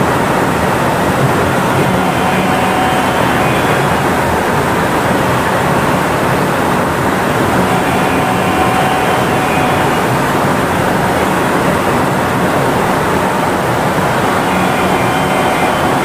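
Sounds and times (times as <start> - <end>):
train tyres rumbling: 0.0 - 16.0
faint high tone: 1.6 - 6.0, 7.4 - 10.7, 14.0 - 16.0.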